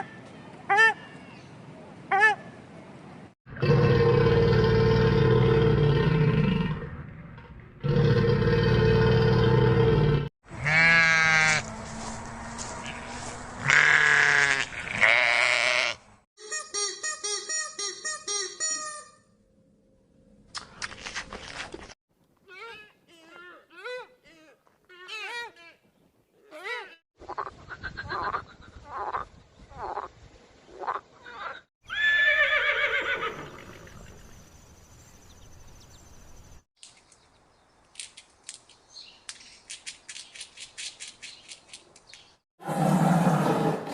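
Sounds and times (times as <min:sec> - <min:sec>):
livestock bleating: 0:10.6 - 0:11.6, 0:12.8 - 0:16.0.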